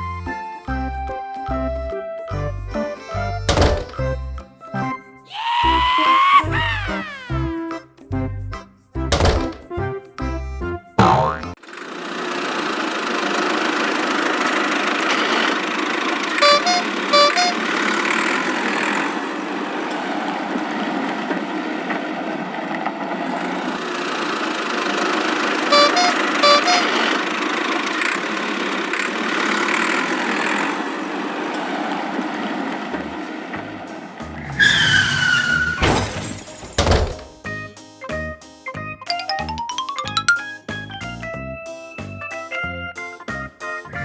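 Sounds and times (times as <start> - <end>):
cartoon engine running: 11.0 - 19.1, 23.8 - 30.9
car horn toots: 16.4 - 17.8, 25.7 - 27.2.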